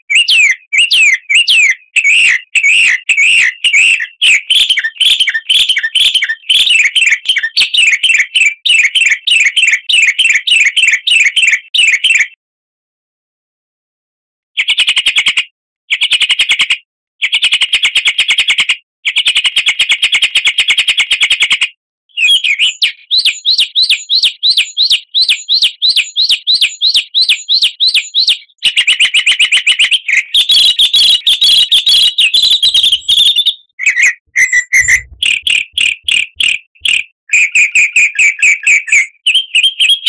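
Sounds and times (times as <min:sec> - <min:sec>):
bird chirps: 0:00.0 - 0:12.3, 0:22.1 - 0:40.0
rising whistled bird notes: 0:00.1 - 0:09.8, 0:22.2 - 0:40.0
songbird trilling: 0:22.2 - 0:37.0.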